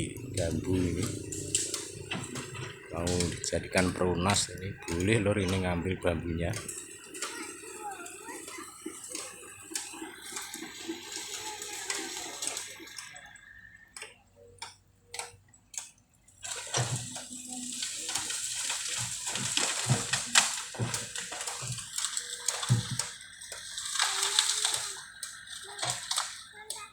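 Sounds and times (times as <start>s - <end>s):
bamboo stalks crackling and snapping: 15.2s - 26.6s.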